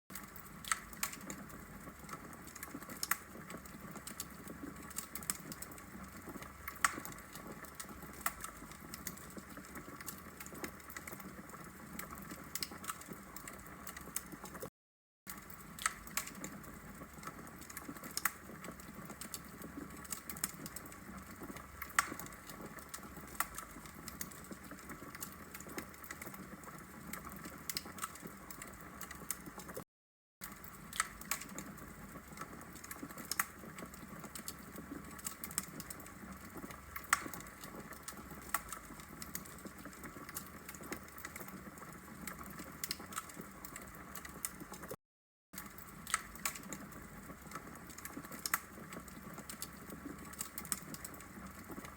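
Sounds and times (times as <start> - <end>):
crackling wood fire: 0.1 - 14.7, 15.3 - 29.8, 30.4 - 45.0, 45.6 - 51.9.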